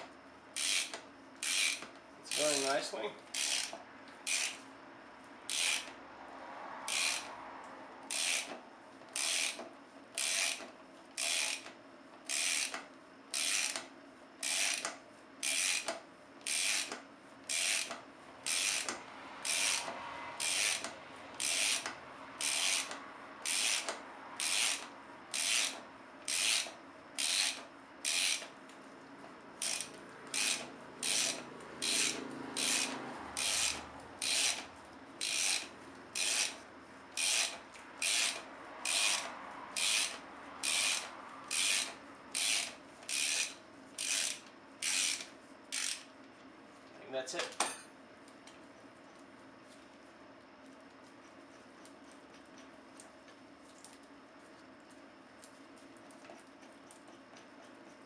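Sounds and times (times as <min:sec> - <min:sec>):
ratchet wrench clicking: 0:00.6 - 0:04.7, 0:05.5 - 0:06.0, 0:06.9 - 0:07.3, 0:08.0 - 0:28.6, 0:29.6 - 0:36.6, 0:37.2 - 0:46.1.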